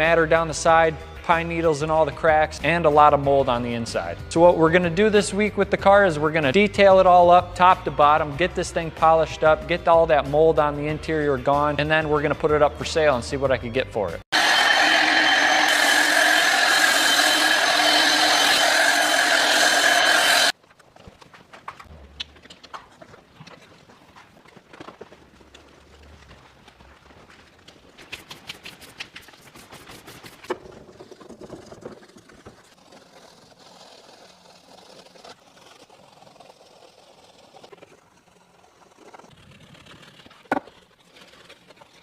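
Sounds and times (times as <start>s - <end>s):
electric machine motor whining: 14.3s - 20.5s.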